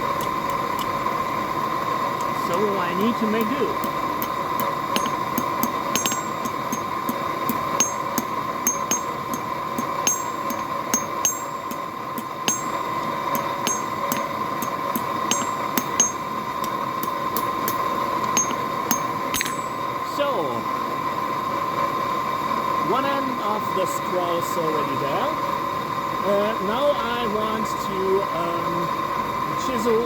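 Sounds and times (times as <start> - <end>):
forge blower humming: 0.0 - 21.6.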